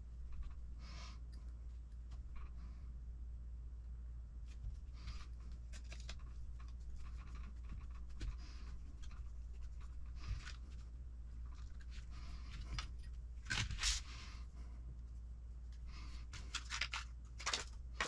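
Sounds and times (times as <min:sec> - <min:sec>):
steady low hum: 0:00.0 - 0:18.0
scratching rustles: 0:04.4 - 0:14.8.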